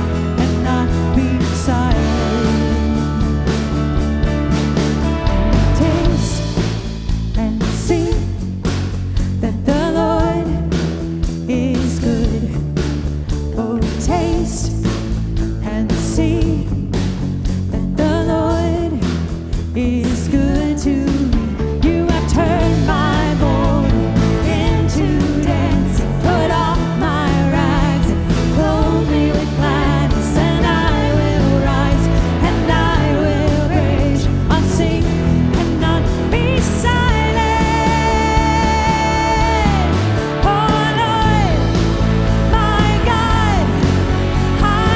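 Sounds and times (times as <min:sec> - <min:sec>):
person singing lead vocal: 0:00.0 - 0:03.9, 0:05.1 - 0:44.9
band playing: 0:00.0 - 0:07.4, 0:22.0 - 0:44.9.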